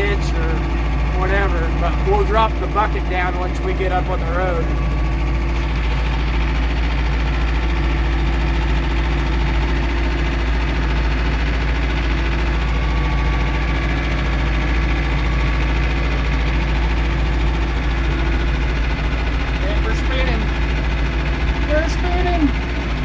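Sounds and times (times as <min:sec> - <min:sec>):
tractor engine under load: 0:00.0 - 0:23.0.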